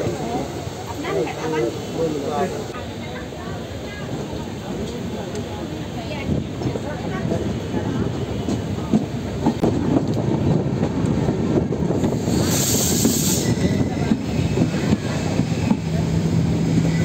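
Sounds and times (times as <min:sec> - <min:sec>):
train wheels clattering over rails: 0:06.2 - 0:17.0.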